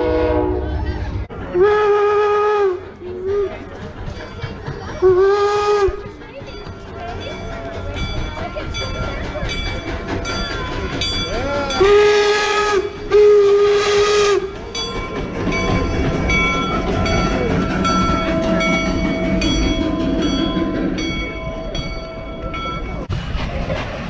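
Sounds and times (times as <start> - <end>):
train whistle blasts: 0.0 - 0.8, 1.6 - 3.5, 5.0 - 6.0, 11.8 - 14.6
train rumbling: 0.0 - 24.0.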